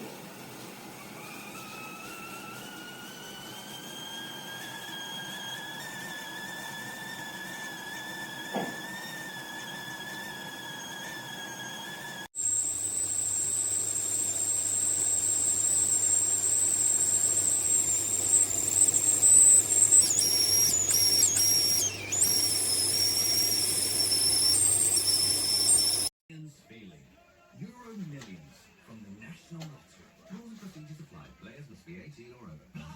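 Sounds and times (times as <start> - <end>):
kettle whistling: 0.0 - 26.1.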